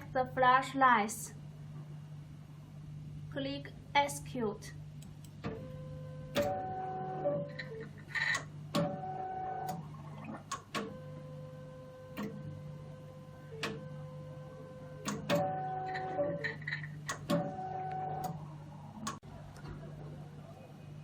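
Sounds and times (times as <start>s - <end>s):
steady mechanical hum: 0.0s - 21.0s
pitched motor whine: 10.8s - 16.6s, 17.3s - 18.6s.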